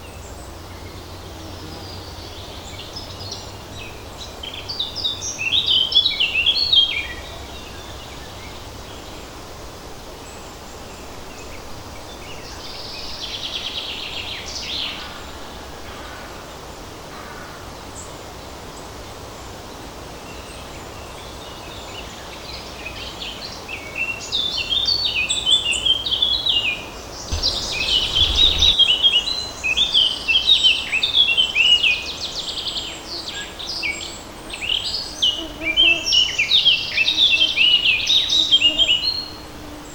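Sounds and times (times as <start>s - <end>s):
buzzy bird trill: 27.3s - 28.8s
low rumble: 27.3s - 28.8s
songbirds singing: 27.3s - 28.8s
light breeze rustle: 27.3s - 28.9s.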